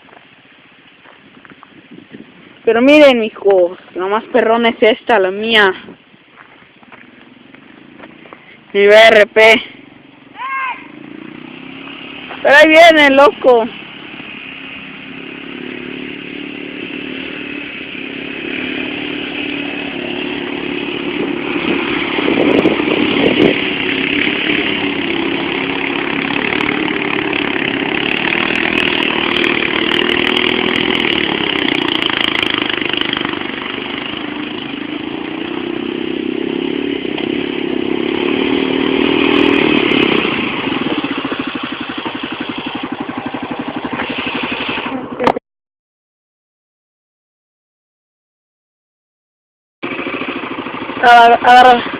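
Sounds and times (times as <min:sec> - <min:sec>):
motorcycle engine revving: 0:06.9 - 0:45.4, 0:49.8 - 0:51.9.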